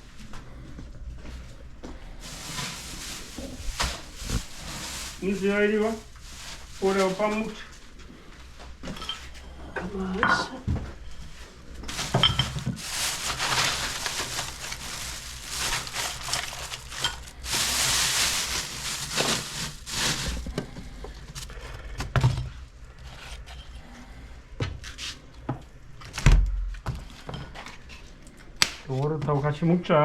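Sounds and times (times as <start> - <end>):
dog food rattling in bowls: 11.9 - 20.5.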